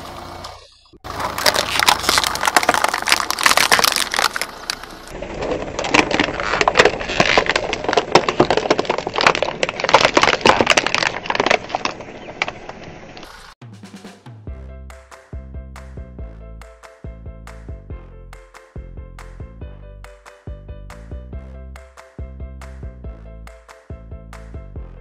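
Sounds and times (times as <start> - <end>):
objects crushed under car tyre: 1.0 - 12.9.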